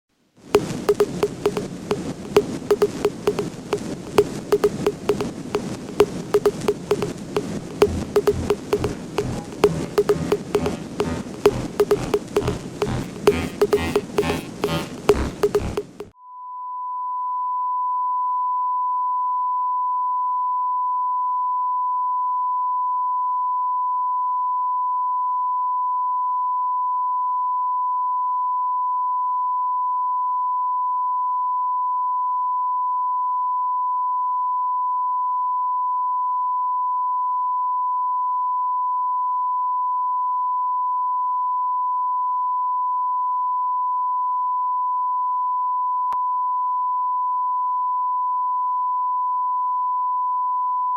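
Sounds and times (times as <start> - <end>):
steady electronic beep tone: 0.6 - 16.1.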